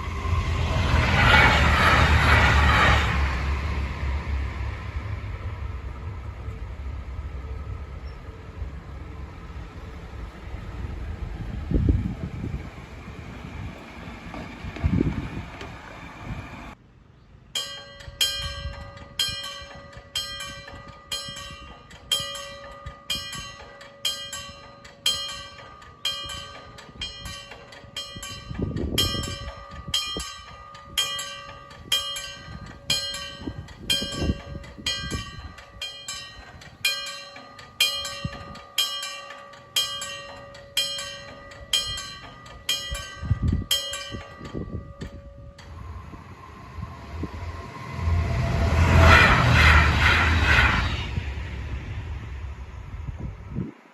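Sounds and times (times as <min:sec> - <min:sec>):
wind rumbling on microphone: 0:00.0 - 0:16.8, 0:18.1 - 0:37.0, 0:41.2 - 0:53.9
level crossing warning bell: 0:17.6 - 0:49.0.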